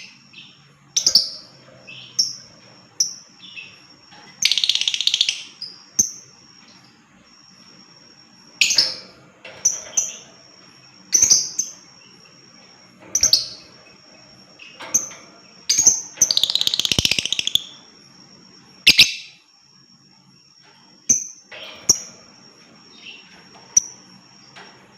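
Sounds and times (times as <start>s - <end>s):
lovebird chirping and trilling: 4.4s - 6.3s, 14.6s - 17.9s, 18.8s - 19.4s.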